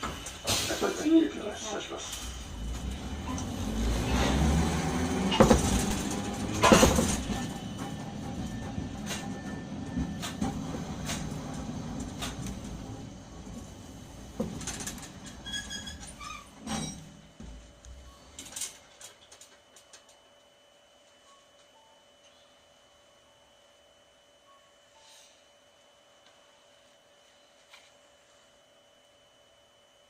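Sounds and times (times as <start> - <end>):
wheels clanking on track: 0.0 - 17.6
streetcar motor and wheels rumbling: 0.0 - 19.3.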